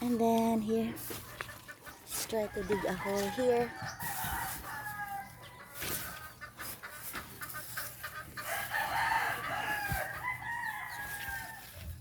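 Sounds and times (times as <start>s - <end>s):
digging in soil: 0.0s - 12.0s
rooster crowing: 2.6s - 5.8s, 8.4s - 11.8s.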